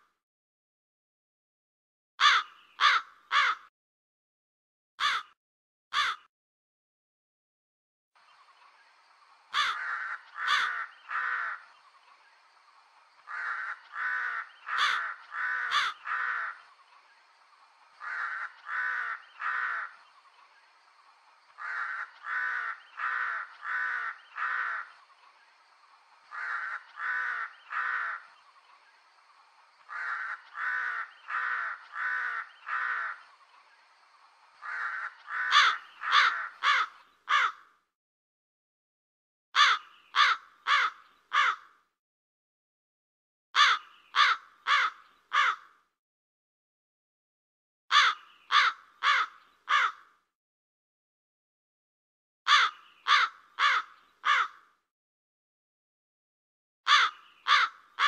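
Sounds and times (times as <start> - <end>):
crow cawing: 2.2 - 3.7, 5.0 - 5.4, 6.0 - 6.3, 9.5 - 11.7, 13.3 - 16.7, 18.0 - 20.0, 21.6 - 25.0, 26.3 - 28.3, 29.9 - 33.3, 34.6 - 37.7, 39.6 - 41.8, 43.6 - 45.8, 47.9 - 50.2, 52.5 - 54.8, 56.9 - 58.0.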